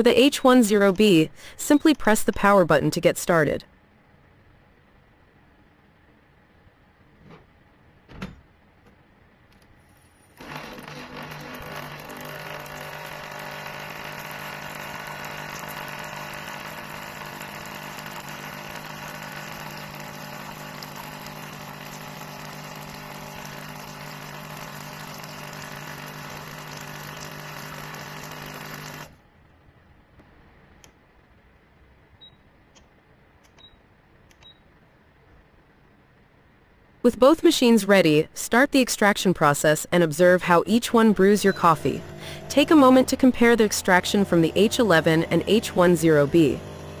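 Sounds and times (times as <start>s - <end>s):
espresso machine buzzing hum: 10.3s - 29.2s, 40.9s - 47.0s.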